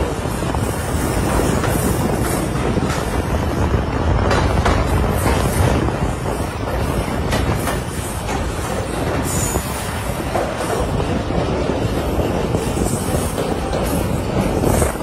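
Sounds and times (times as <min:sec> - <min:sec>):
train running on track: 0:00.0 - 0:15.0.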